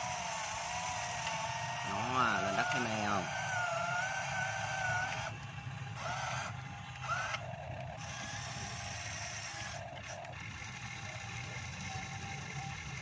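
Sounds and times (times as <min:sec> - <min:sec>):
electric motors whining: 0:00.0 - 0:13.0.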